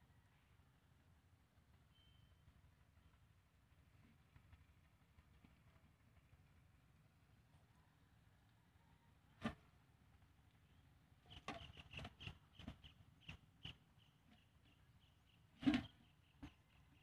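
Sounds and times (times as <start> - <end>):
bird chirping: 1.9 - 2.4, 10.6 - 17.0.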